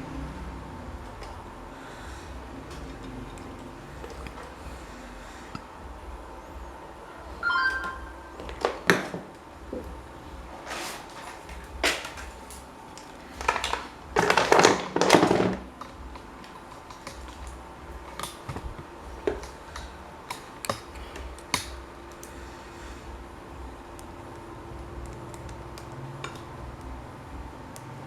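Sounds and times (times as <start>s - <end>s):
scraping or rubbing: 10.6s - 11.5s.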